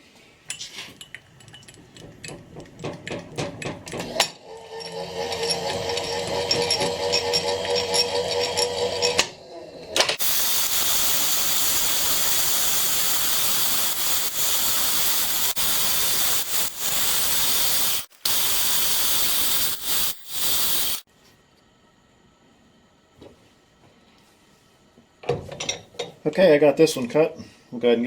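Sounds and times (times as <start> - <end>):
compressed air hissing: 10.2 - 21.1.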